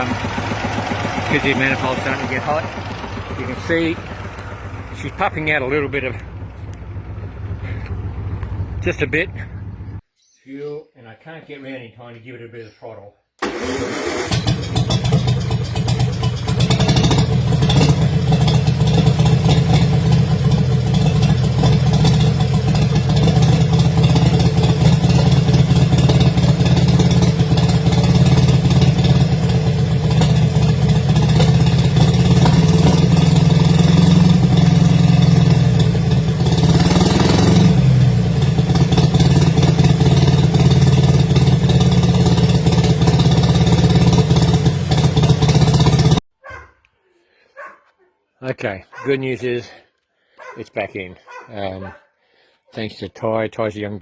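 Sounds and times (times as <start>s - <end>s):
truck engine revving: 0.0s - 10.0s, 13.4s - 46.2s
truck engine running: 0.0s - 10.0s, 13.4s - 46.2s.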